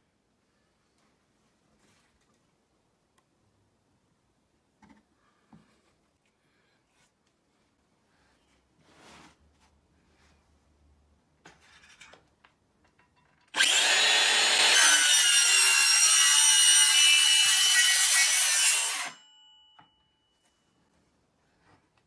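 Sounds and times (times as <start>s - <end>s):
circular saw cutting wood: 13.6s - 19.2s.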